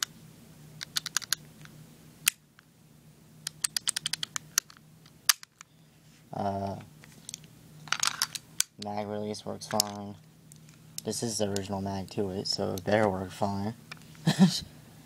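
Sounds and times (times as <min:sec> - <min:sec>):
pistol controls clicking: 0:03.5 - 0:05.5.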